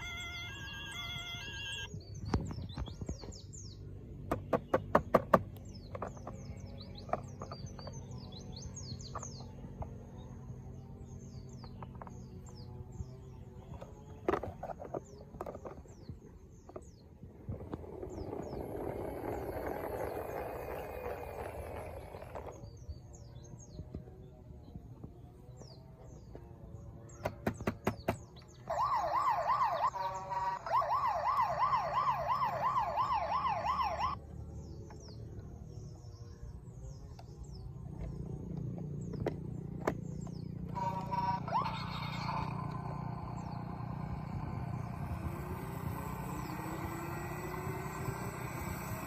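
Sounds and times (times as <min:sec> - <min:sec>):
toy police car siren: 0:00.0 - 0:01.9, 0:28.6 - 0:34.2, 0:40.7 - 0:49.0.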